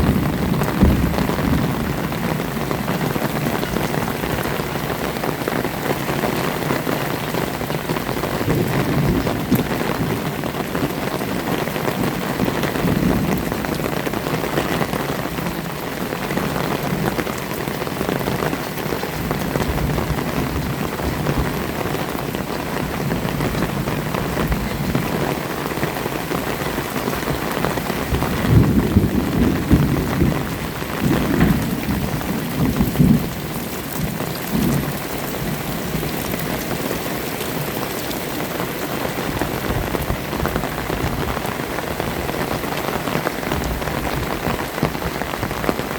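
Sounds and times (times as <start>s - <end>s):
low rumble of thunder: 0.0s - 4.9s, 8.1s - 25.5s, 26.7s - 38.4s
heavy rain falling: 0.0s - 45.9s.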